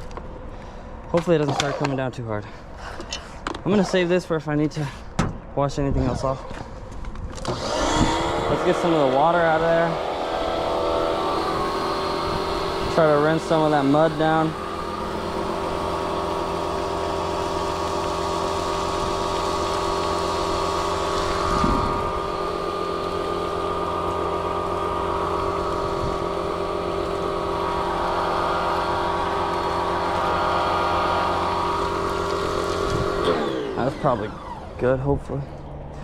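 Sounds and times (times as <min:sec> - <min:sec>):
pressure washer motor hum: 0:07.3 - 0:36.0.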